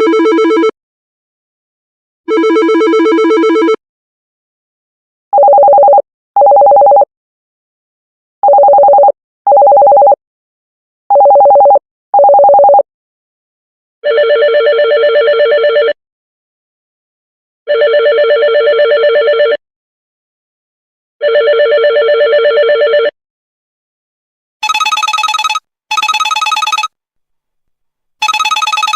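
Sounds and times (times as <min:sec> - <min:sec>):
telephone ringing: 0:00.0 - 0:00.7, 0:02.3 - 0:03.8, 0:05.4 - 0:07.1, 0:08.4 - 0:10.2, 0:11.1 - 0:12.8, 0:14.0 - 0:16.0, 0:17.7 - 0:19.6, 0:21.2 - 0:23.1, 0:24.6 - 0:27.0, 0:28.2 - 0:28.9
buzzy trilling phone ring: 0:24.6 - 0:26.9, 0:28.2 - 0:28.9.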